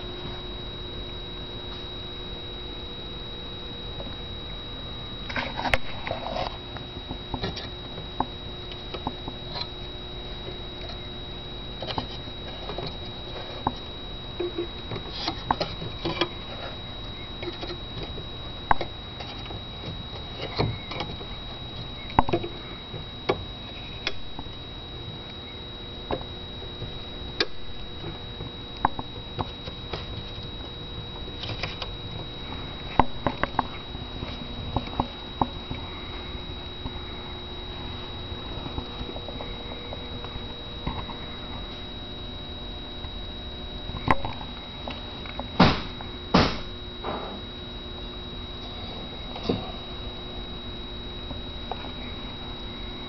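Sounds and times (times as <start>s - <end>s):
faint high whine: 0.0s - 53.0s
low hum: 0.0s - 53.0s
louder knocks: 45.6s - 47.4s.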